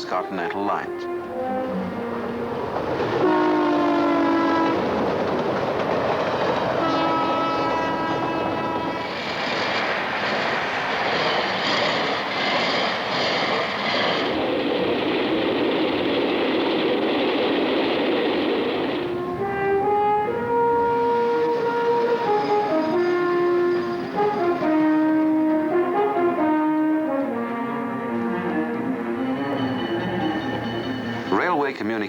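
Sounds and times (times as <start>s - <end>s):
locomotive horn blasts: 0.0s - 4.9s, 6.8s - 9.0s, 19.1s - 31.2s
train rumbling on rails: 0.0s - 32.0s.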